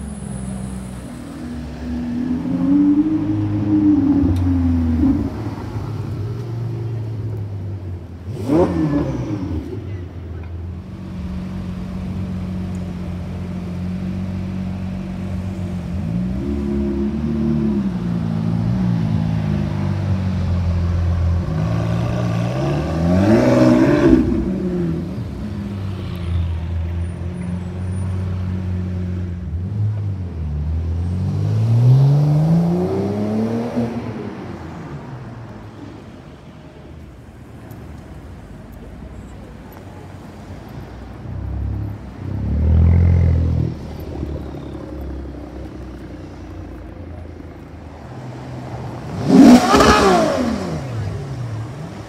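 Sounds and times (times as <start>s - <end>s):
car engine idling and revving: 0.0s - 52.0s
car accelerating away: 8.3s - 9.9s, 21.1s - 25.4s, 41.4s - 52.0s.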